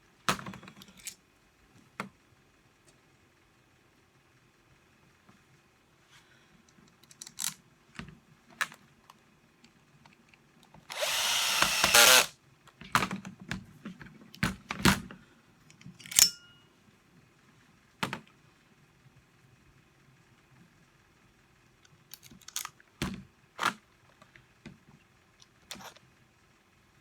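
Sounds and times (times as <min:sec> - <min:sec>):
cordless screwdriver running: 0:10.9 - 0:12.3.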